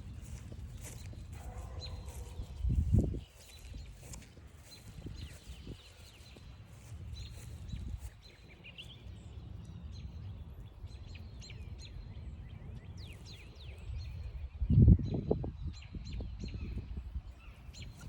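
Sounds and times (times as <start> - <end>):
footsteps crunching on trail: 0.0 - 9.0
songbirds chirping: 0.0 - 18.0.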